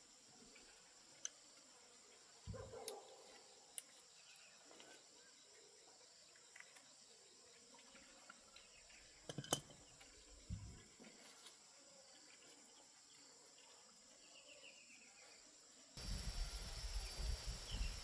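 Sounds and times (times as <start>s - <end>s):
insect chirring: 16.0s - 18.0s.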